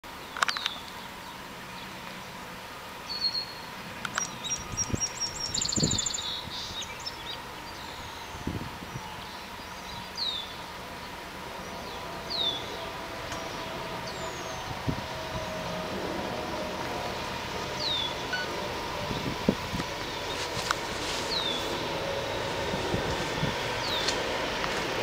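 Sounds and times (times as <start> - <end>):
small birds chirping: 0.2 - 2.4, 3.0 - 15.1, 17.7 - 18.5, 20.0 - 24.7.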